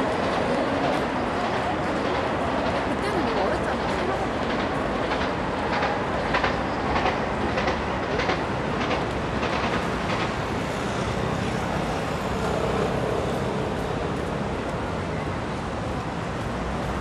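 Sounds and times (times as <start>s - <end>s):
train wheels clicking over rail joints: 0.0s - 11.4s
train rumble: 0.0s - 17.0s.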